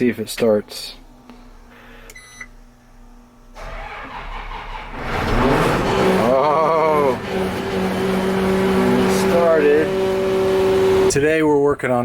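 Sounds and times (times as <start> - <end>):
diesel engine running: 0.0 - 11.3
starter cranking: 3.6 - 9.8.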